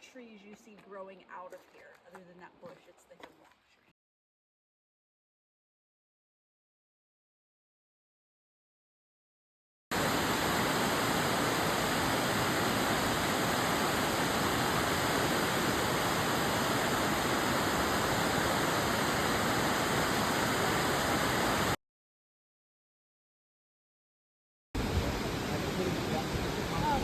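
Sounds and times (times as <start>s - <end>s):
waterfall roaring: 10.0s - 21.8s, 24.8s - 27.0s.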